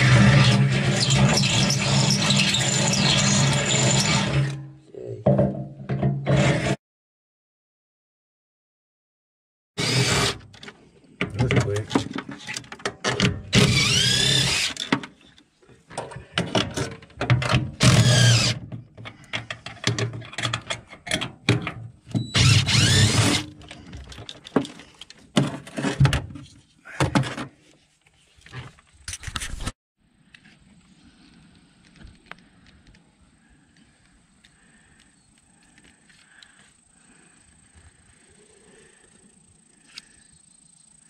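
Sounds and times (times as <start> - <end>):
power drill whining: 0.0 - 4.6, 9.8 - 10.7, 13.5 - 14.9, 17.8 - 18.6, 22.1 - 24.0.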